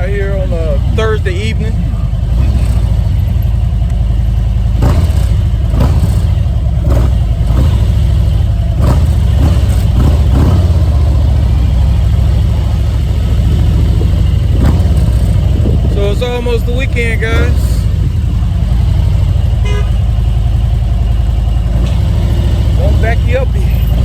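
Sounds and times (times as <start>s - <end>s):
motorcycle engine rumbling: 0.0s - 24.0s
wind noise: 8.8s - 19.3s.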